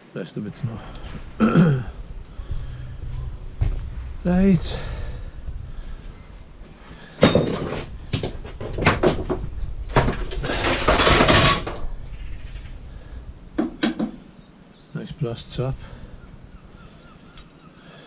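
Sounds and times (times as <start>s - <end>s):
scrap metal scraping and rattling: 4.3s - 13.1s
metal clank ringing: 7.2s - 8.0s.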